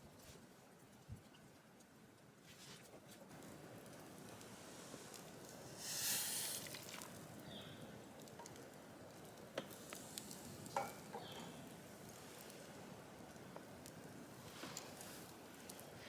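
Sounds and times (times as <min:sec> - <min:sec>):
food sizzling over campfire: 0:03.5 - 0:16.0.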